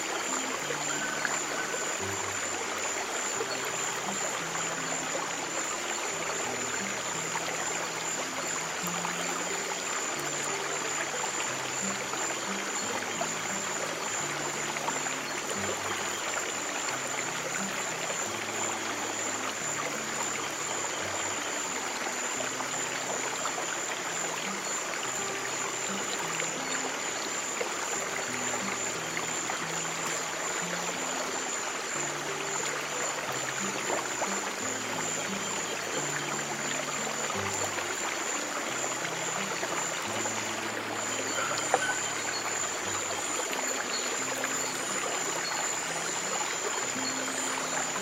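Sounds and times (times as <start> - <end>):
stream flowing: 0.0 - 48.0
thin steady high tone: 34.3 - 48.0.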